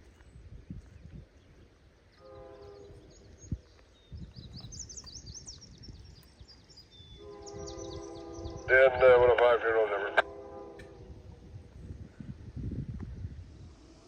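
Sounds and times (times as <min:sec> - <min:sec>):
small birds chirping: 0:00.0 - 0:08.7
locomotive air horn blast: 0:02.2 - 0:03.0, 0:07.2 - 0:09.2, 0:10.1 - 0:11.3.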